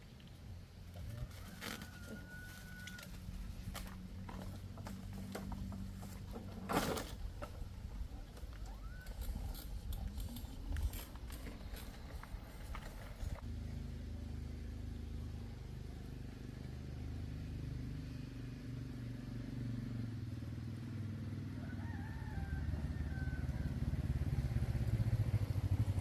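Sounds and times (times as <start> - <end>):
rooster crowing: 1.0 - 3.3, 21.5 - 24.1
motorcycle engine idling: 22.6 - 26.0.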